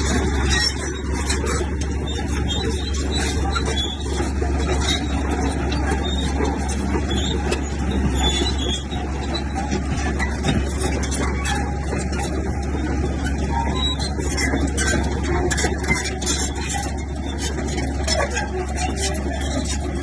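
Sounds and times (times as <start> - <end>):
bulldozer diesel drone: 0.0 - 20.0
tracks squealing: 0.0 - 20.0.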